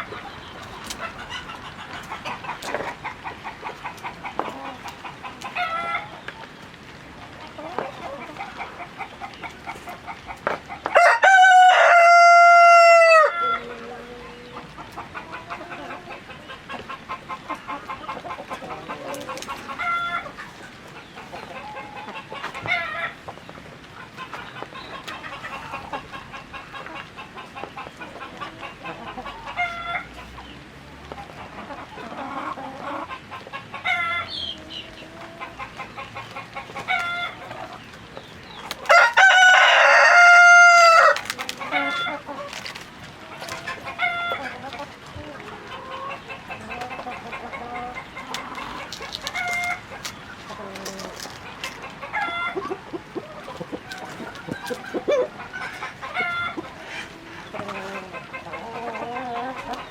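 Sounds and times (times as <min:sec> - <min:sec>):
chickens clucking: 0:00.0 - 0:59.9
rooster crowing: 0:10.9 - 0:13.7, 0:38.9 - 0:41.2
chicken squawks: 0:45.6 - 0:59.9.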